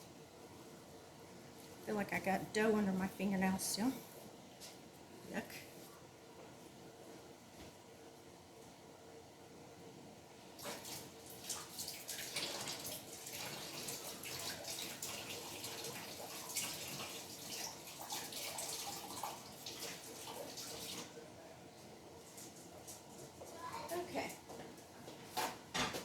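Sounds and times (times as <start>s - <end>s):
tap water running into sink: 10.6s - 21.2s.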